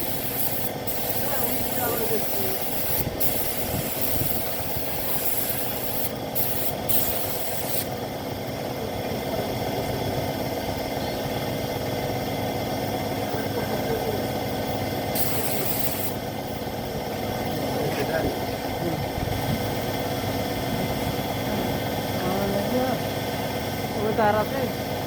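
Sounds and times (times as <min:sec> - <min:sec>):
paint spray gun hissing: 0:00.0 - 0:08.0, 0:15.0 - 0:16.4
steady motor hum: 0:00.0 - 0:25.0.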